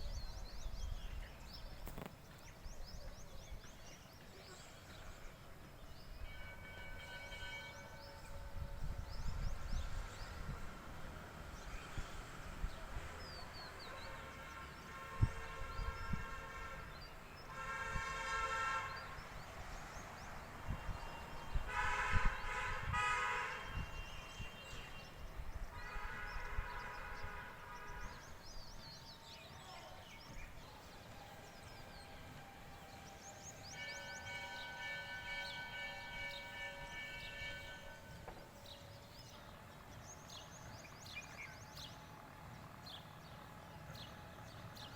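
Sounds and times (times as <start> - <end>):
long horn blasts: 6.2 - 10.6, 13.6 - 19.5, 20.7 - 28.5, 31.5 - 39.4.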